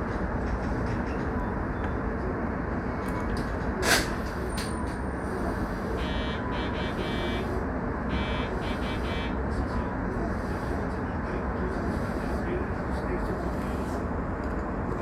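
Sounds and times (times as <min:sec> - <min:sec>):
electric train interior noise: 0:00.0 - 0:15.0
high buzzer-like ringing tone: 0:06.0 - 0:07.5, 0:08.1 - 0:09.4.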